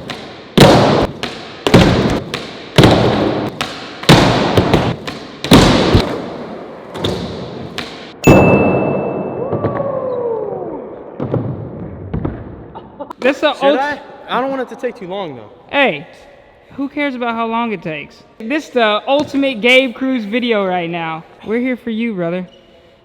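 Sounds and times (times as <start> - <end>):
big hit with high tone: 8.2 - 9.7.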